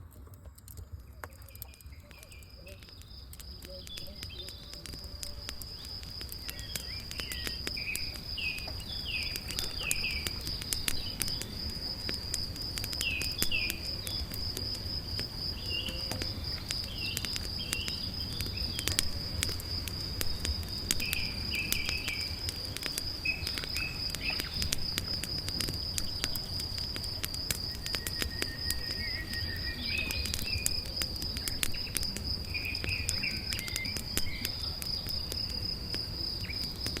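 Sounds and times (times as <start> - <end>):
campfire crackling: 0.0 - 37.0
cricket trilling: 0.0 - 37.0
bird chirps: 1.1 - 11.6, 27.8 - 34.7.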